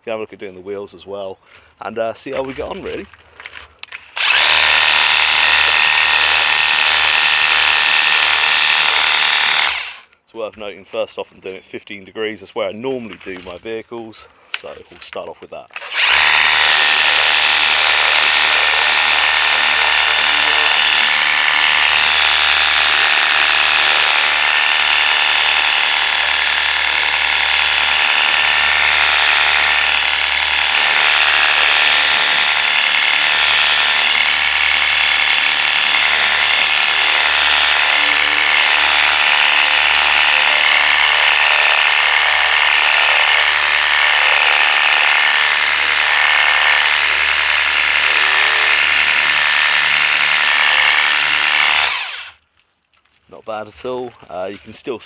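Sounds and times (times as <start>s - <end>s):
pressure washer motor and pump: 3.8s - 10.0s, 15.8s - 52.4s.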